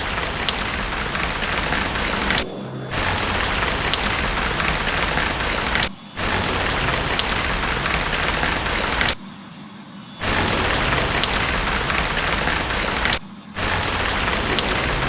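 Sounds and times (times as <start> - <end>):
low rumble: 0.0 - 9.0
heavy rain: 0.0 - 9.1, 10.2 - 15.0.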